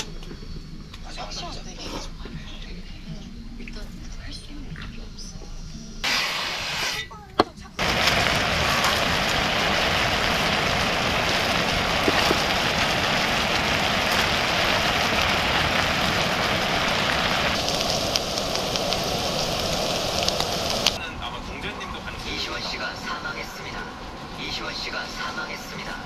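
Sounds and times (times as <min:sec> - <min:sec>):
scallops sizzling in oil: 0:06.0 - 0:07.0, 0:07.8 - 0:21.0.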